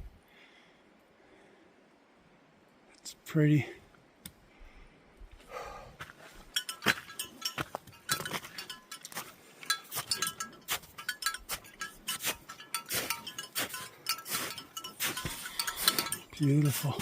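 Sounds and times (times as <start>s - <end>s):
bells jingling: 6.5s - 17.0s.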